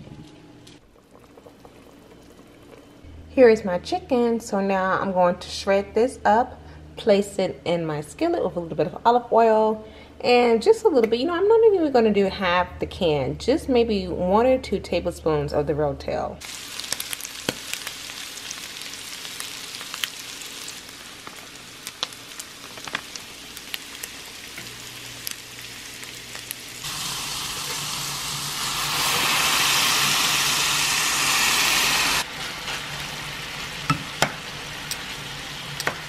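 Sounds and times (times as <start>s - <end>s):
chicken sizzling in oil: 16.4s - 35.9s.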